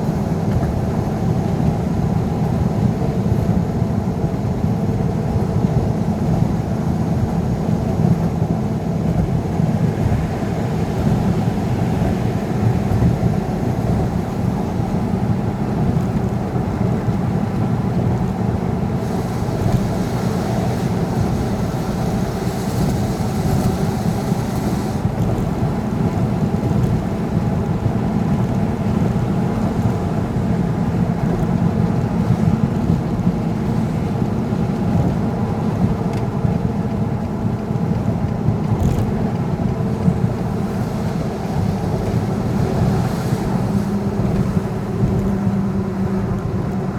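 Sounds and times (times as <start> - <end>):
road rumble: 0.0 - 46.9
vehicle engine: 18.9 - 27.6
rising hiss: 19.0 - 25.1.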